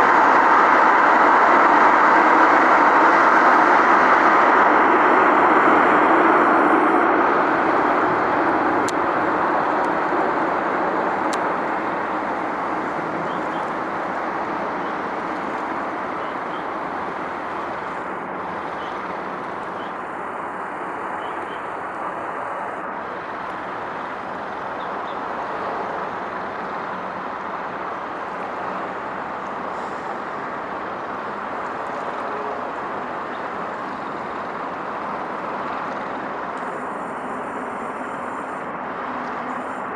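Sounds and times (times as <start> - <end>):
road traffic rumble: 0.0 - 39.9
vehicle passing: 3.1 - 39.7.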